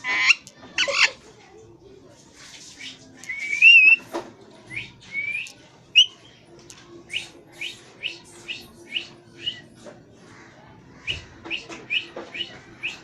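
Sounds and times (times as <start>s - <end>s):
parrot chirping: 0.0s - 1.2s.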